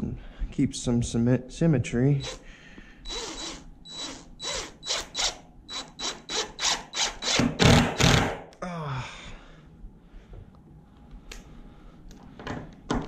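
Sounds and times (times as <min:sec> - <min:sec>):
ratcheting screwdriver rasping: 0:03.1 - 0:07.5.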